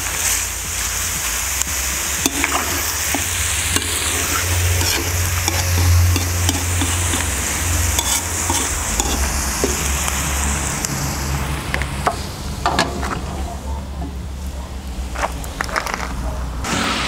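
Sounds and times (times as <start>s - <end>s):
meat and onion sizzling in oil: 0.0s - 13.1s
metal skimmer scraping pot: 2.2s - 9.9s.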